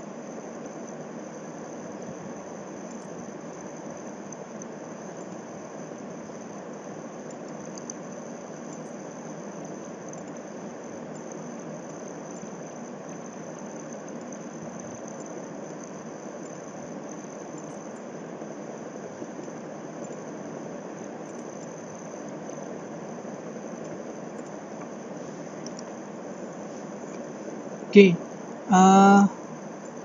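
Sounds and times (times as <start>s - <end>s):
faint ticks: 6.7s - 9.0s, 9.6s - 10.5s, 11.1s - 12.5s, 25.6s - 25.9s.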